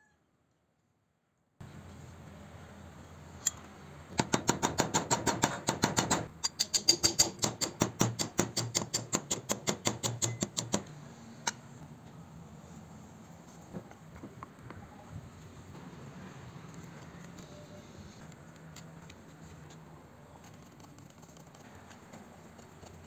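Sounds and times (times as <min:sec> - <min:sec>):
small hammer tapping on metal: 0:04.2 - 0:10.9.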